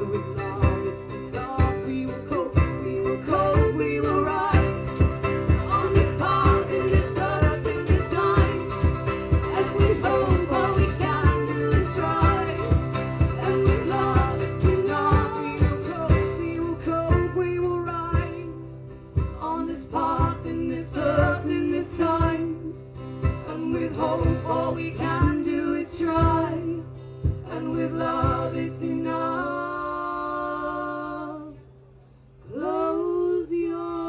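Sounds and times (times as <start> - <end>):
live band instrumental music: 0.0 - 17.4.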